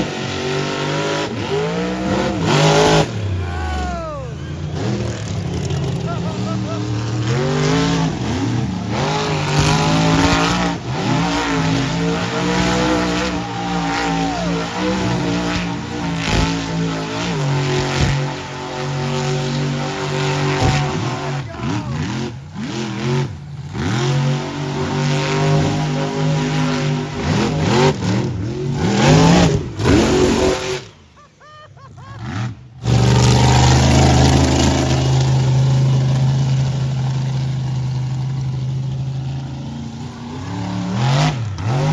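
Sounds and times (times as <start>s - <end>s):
monster truck engines revving: 0.0s - 41.9s.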